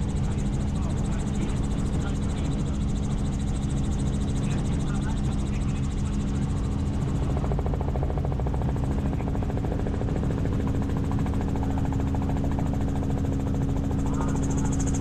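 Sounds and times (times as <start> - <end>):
helicopter engine and rotor drone: 0.0 - 15.0.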